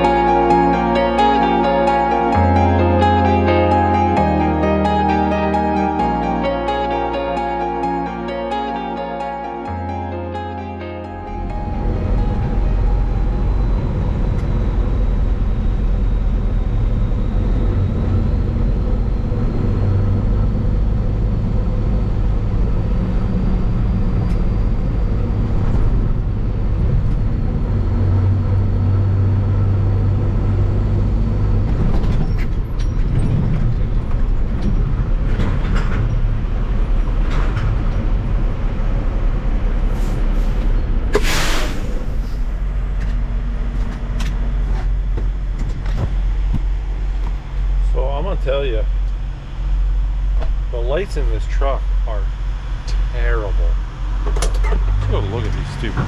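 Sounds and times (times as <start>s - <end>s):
truck engine and road drone: 0.0s - 56.0s
short hisses: 40.0s - 42.5s.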